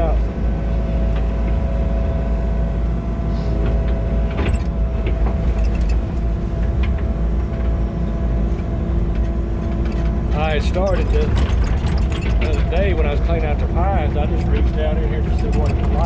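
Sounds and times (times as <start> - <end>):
tractor engine running: 0.0 - 16.0
machine clanking: 8.6 - 16.0.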